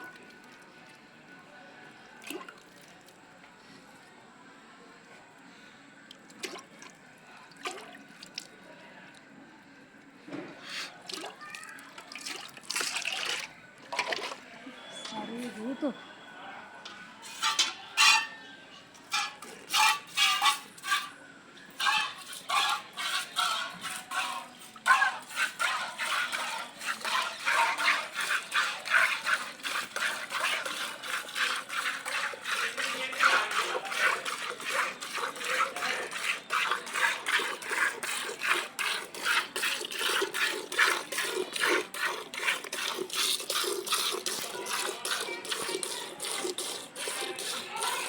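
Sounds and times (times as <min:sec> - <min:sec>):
milk squirting into a pail: 0:10.7 - 0:14.4, 0:21.8 - 0:48.0.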